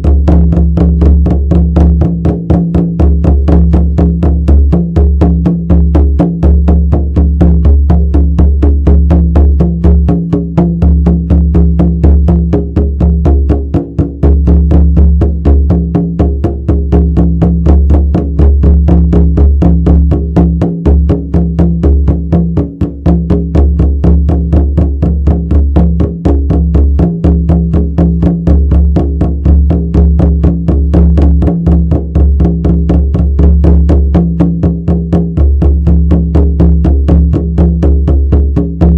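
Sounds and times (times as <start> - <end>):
frame drum beating: 0.0 - 38.9.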